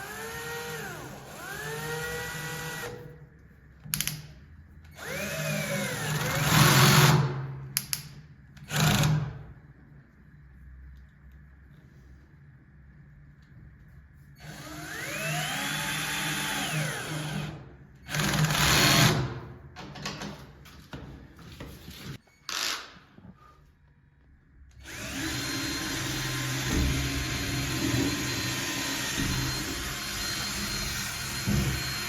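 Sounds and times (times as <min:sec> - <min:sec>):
power drill running: 0:14.4 - 0:19.2, 0:24.8 - 0:32.0.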